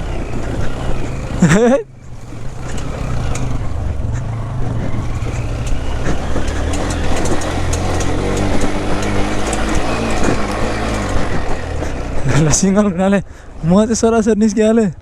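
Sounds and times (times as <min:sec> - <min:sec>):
constant rushing noise: 0:00.0 - 0:15.0
motorcycle engine running: 0:00.0 - 0:15.0
small clicks: 0:05.3 - 0:11.9.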